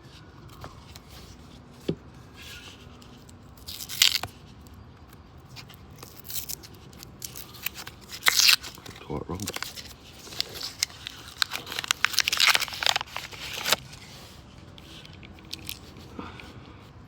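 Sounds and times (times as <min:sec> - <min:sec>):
paper wrapper tearing: 0:03.6 - 0:04.4, 0:05.6 - 0:16.0.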